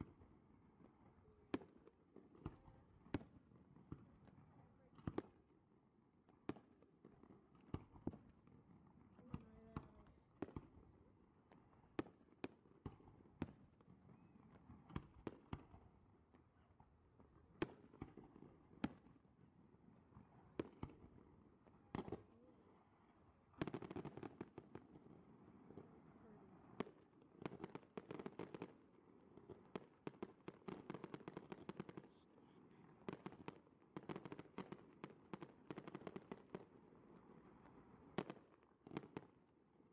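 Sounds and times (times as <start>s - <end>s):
fireworks bursting with bangs: 29.5s - 36.7s.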